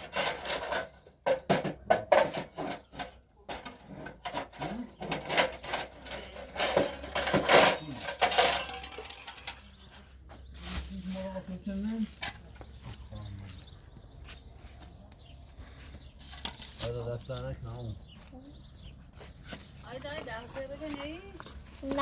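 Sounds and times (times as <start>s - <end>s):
dishes and pots clattering: 0.0s - 9.9s.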